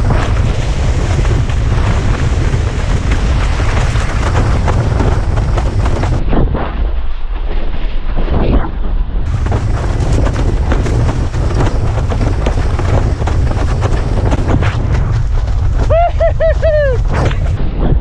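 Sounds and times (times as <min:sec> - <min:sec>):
wind buffeting microphone: 0:00.0 - 0:07.0, 0:08.2 - 0:18.0.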